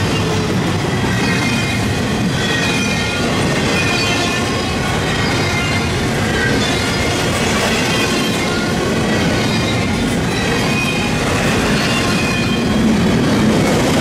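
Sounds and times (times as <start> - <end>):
train wheels rumbling on rail: 0.0 - 14.0
high wheel squeals: 1.1 - 12.9.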